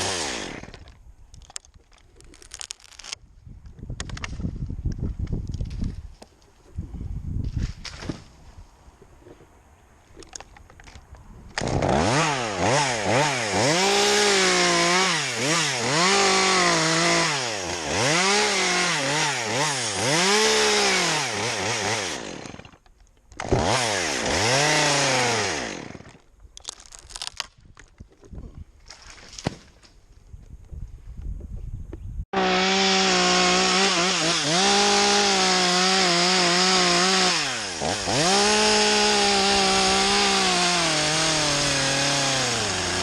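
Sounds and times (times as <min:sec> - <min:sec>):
chainsaw running at high revs: 0:00.0 - 0:00.8, 0:11.6 - 0:22.8, 0:23.4 - 0:26.1, 0:32.4 - 0:43.0.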